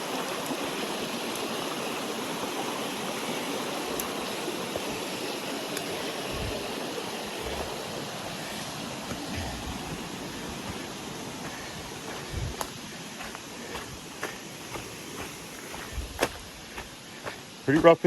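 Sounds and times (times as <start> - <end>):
creek water rushing over rocks: 0.0 - 18.0
soft low thumps: 11.5 - 12.8, 15.8 - 16.9.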